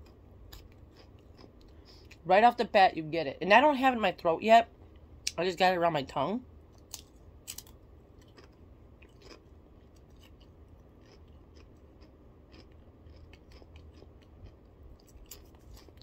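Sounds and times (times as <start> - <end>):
potato chip crunching: 6.8 - 16.0.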